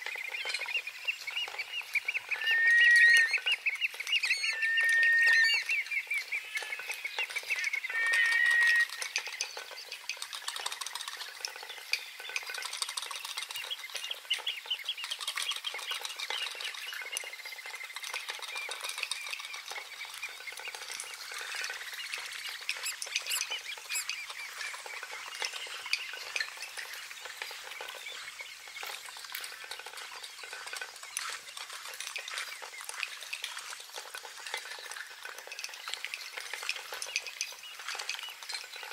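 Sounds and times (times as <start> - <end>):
chatter of small bird calls: 0.0 - 38.9
clear whistled bird call: 0.1 - 9.6.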